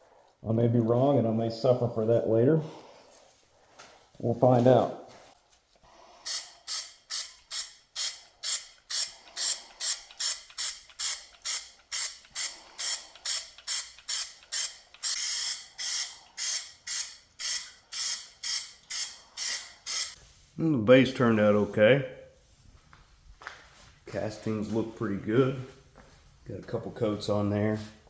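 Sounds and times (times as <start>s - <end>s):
aerosol can spraying: 6.2s - 20.2s.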